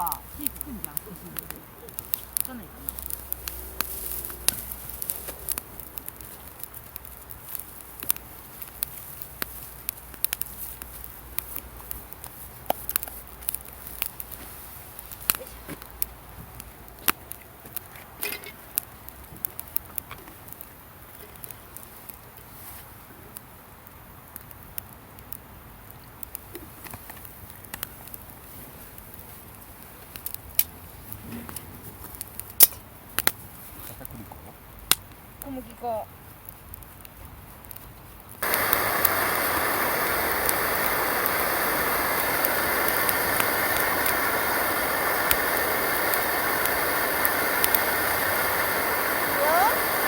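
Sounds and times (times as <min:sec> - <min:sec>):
campfire crackling and popping: 0:00.0 - 0:50.0.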